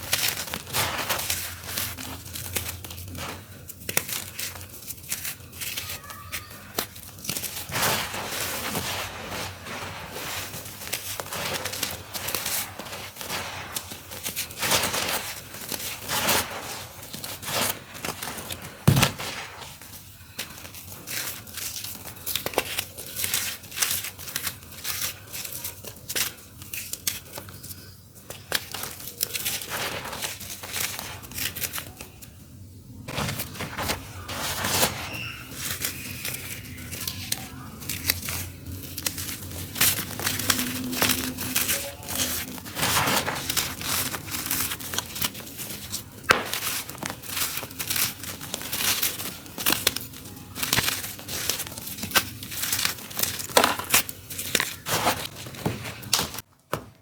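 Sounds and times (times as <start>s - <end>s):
dirt clumps crumbling: 0.0s - 5.8s, 6.7s - 22.4s, 33.1s - 56.5s.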